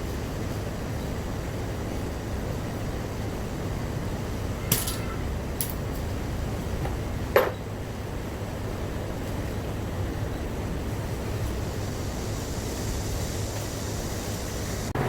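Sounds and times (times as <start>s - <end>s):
low workshop hum: 0.0s - 15.0s
sharp metallic clink: 4.6s - 5.8s.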